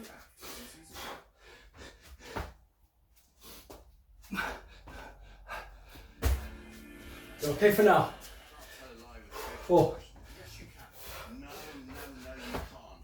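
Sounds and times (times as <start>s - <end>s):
man breathing hard: 0.3s - 2.6s, 3.2s - 6.2s
dull thump: 6.2s - 6.6s.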